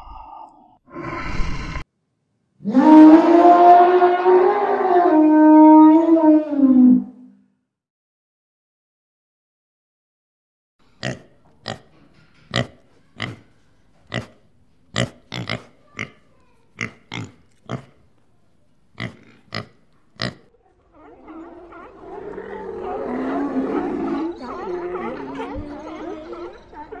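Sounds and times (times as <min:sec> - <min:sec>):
warthog grunting: 0:15.0 - 0:18.0.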